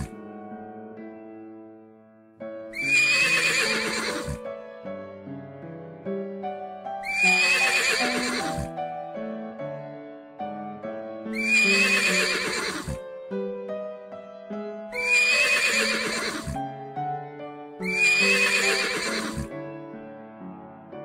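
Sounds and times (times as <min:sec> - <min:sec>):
soft background music: 0:00.0 - 0:21.0
horse whinnying: 0:02.8 - 0:04.4, 0:07.0 - 0:08.8, 0:11.4 - 0:13.0, 0:15.0 - 0:16.6, 0:17.8 - 0:19.5.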